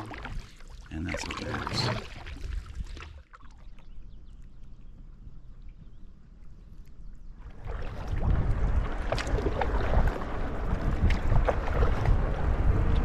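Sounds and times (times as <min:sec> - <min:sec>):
water splashing around canoe: 0:00.0 - 0:03.9, 0:07.4 - 0:13.0
wind rumbling on microphone: 0:03.8 - 0:13.0.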